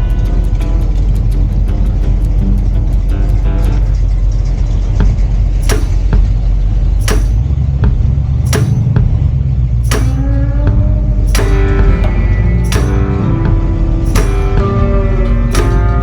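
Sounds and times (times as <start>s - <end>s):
car engine rumbling: 0.0s - 16.0s
sharp hits: 5.0s - 16.0s.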